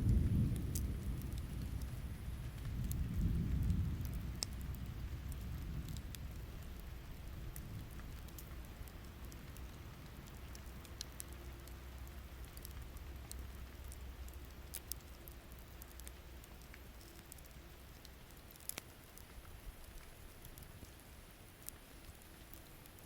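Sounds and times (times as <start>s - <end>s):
campfire crackling and popping: 0.0s - 23.0s
rain pattering: 0.0s - 23.0s.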